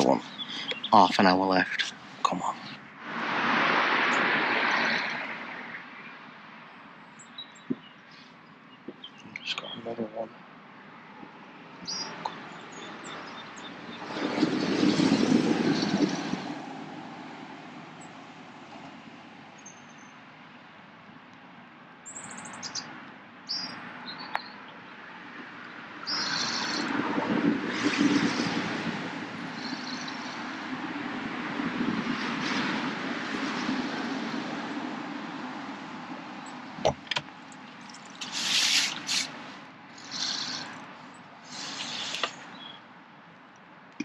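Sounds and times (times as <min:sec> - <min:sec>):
small birds chirping: 0:00.0 - 0:02.9, 0:04.7 - 0:16.2, 0:19.5 - 0:20.3, 0:22.0 - 0:27.0, 0:29.4 - 0:30.7, 0:37.4 - 0:42.9
rushing noise: 0:00.0 - 0:06.1.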